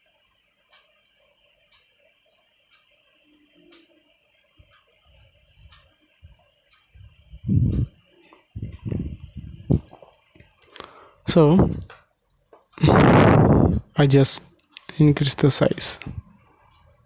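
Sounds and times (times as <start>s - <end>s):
computer mouse clicking: 0.7s - 2.9s, 4.6s - 6.9s, 7.6s - 8.0s, 8.6s - 10.5s.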